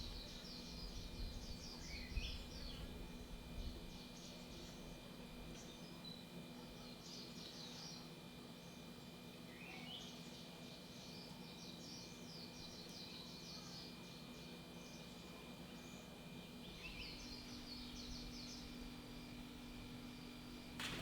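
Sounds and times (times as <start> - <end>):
bird calls and chirps: 0.0 - 3.0, 9.5 - 19.5
steady high-pitched hum: 0.0 - 21.0.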